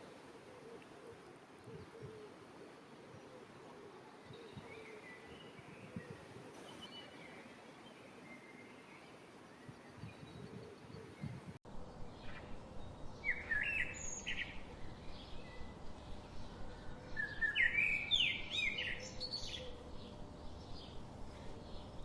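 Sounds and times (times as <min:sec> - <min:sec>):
outdoor background hiss: 0:00.0 - 0:22.0
birds chirping: 0:04.1 - 0:22.0.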